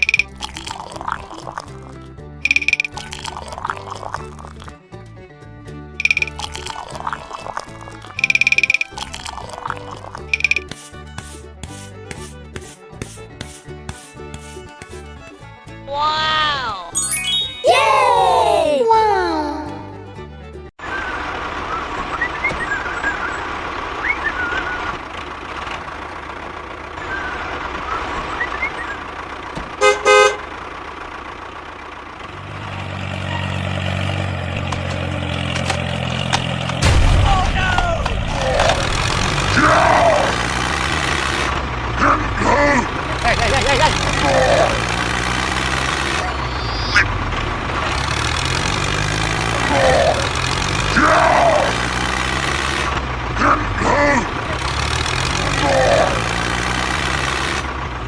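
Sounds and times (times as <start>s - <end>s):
engine humming: 0.0s - 58.0s
faint high chirps: 2.5s - 3.0s, 46.2s - 47.1s
vehicle horn tooting: 29.7s - 30.7s
short rising squeak: 45.4s - 47.2s.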